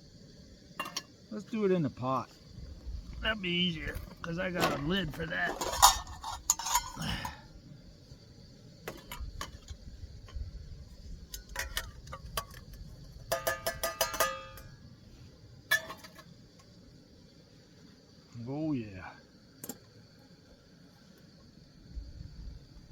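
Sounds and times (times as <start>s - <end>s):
metal pot and lid clinking: 0.8s - 1.1s, 5.5s - 7.3s, 11.4s - 12.6s, 13.3s - 14.7s
ringing metallic clangs: 13.3s - 14.7s.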